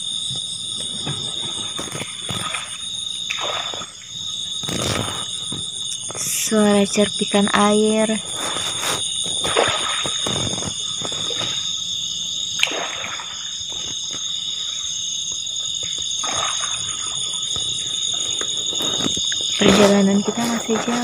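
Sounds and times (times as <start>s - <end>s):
night insects chorus: 0.0s - 21.0s
paddle splashing in water: 0.9s - 5.7s, 8.3s - 11.8s, 12.6s - 14.8s, 15.8s - 21.0s.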